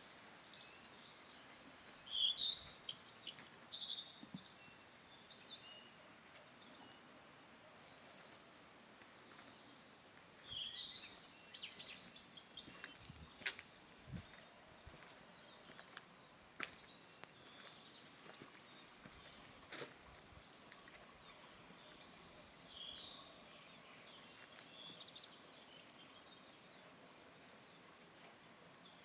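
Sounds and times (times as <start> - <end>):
faint background noise: 0.0 - 29.0
songbirds chirping: 0.0 - 29.0.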